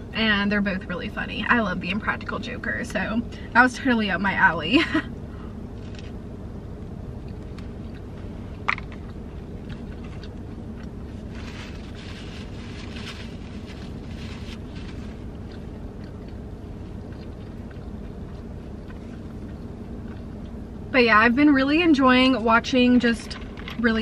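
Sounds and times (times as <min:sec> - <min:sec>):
low hum inside car: 0:00.0 - 0:24.0
person chewing crispy food: 0:07.0 - 0:20.6.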